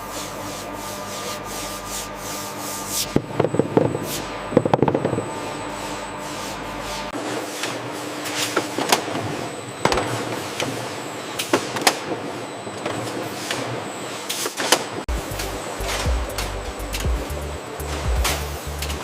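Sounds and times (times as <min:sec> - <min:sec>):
machinery whirring: 0:00.0 - 0:19.0.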